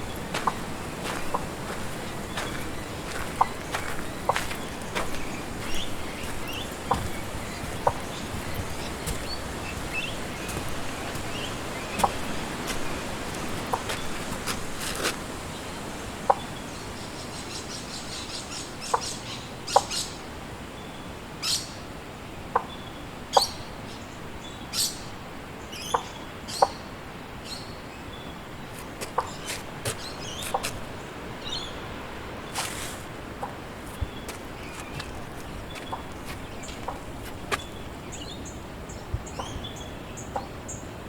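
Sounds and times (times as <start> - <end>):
birds chirping: 0.0 - 16.7, 28.2 - 40.8
wind in trees: 0.0 - 41.0.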